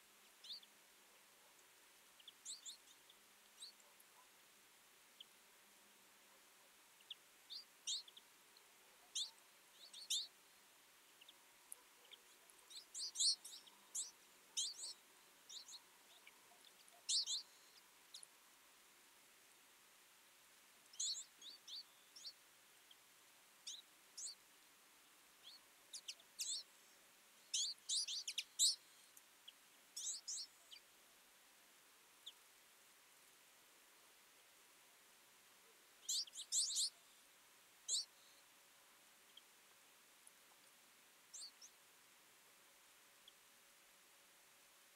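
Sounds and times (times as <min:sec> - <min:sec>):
birds chirping: 0:01.4 - 0:04.3, 0:06.3 - 0:10.4, 0:11.0 - 0:18.3, 0:20.9 - 0:24.4, 0:25.4 - 0:30.9, 0:36.0 - 0:37.1, 0:37.9 - 0:38.5, 0:41.3 - 0:41.8.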